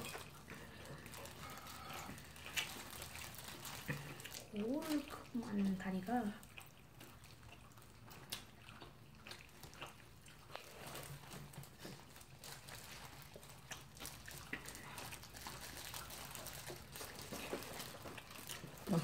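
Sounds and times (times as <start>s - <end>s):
plastic gloves crinkling: 0.0s - 6.4s, 10.5s - 19.0s
biting and chewing fried chicken: 0.0s - 19.0s.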